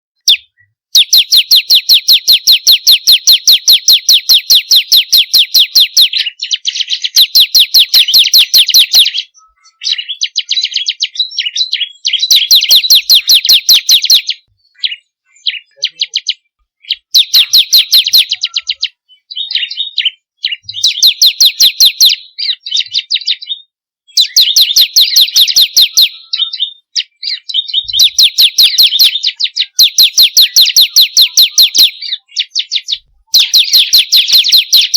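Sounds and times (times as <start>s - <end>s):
bird singing sharp chip notes: 0.2s - 19.0s.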